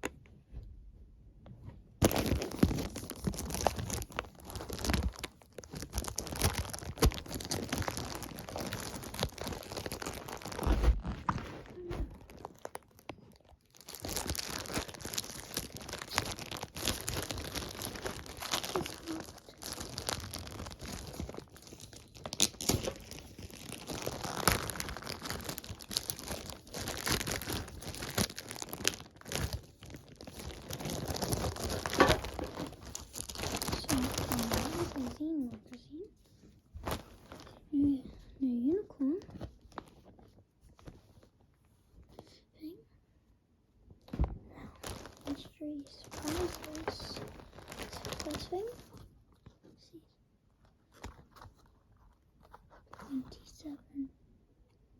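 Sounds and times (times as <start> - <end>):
packaging being torn and crumpled: 2.0 - 35.2, 36.8 - 37.6, 39.4 - 40.2, 44.7 - 49.5, 50.7 - 53.4.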